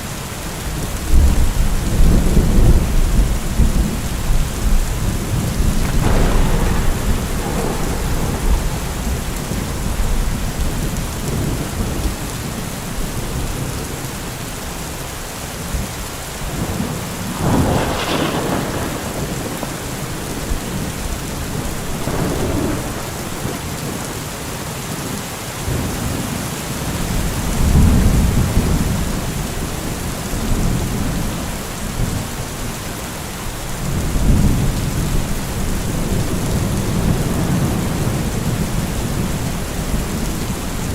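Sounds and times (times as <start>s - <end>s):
steady rain: 0.0s - 40.9s
rolling thunder: 1.1s - 13.7s, 16.4s - 24.2s, 33.7s - 40.9s.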